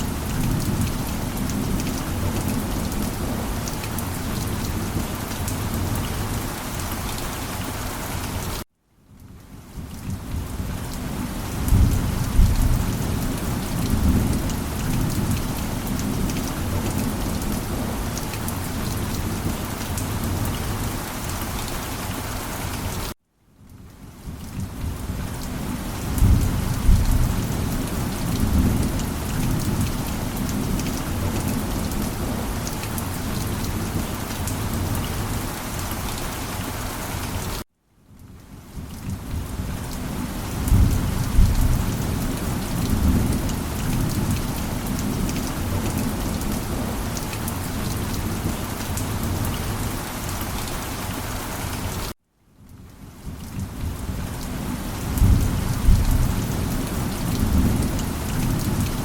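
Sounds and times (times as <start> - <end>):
heavy rain: 0.0 - 59.0
thunder rumbling: 11.6 - 18.2, 26.0 - 32.6, 40.5 - 47.0, 55.0 - 59.0.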